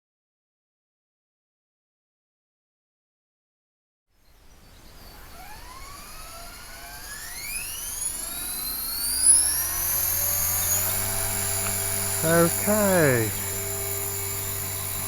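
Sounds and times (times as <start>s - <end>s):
model helicopter motor whine: 4.7s - 15.0s.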